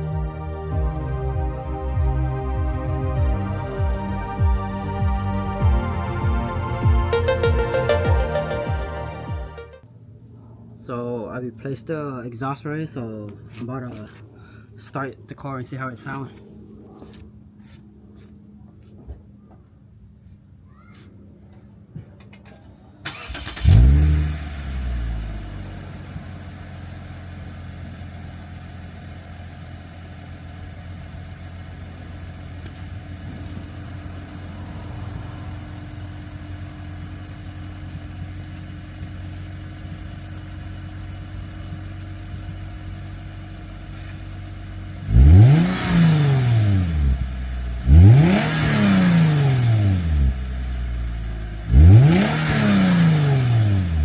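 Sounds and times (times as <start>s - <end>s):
car engine starting and idling: 2.0s - 11.6s, 22.6s - 54.0s
engine revs blipped: 3.0s - 9.8s, 23.1s - 26.1s, 44.9s - 54.0s.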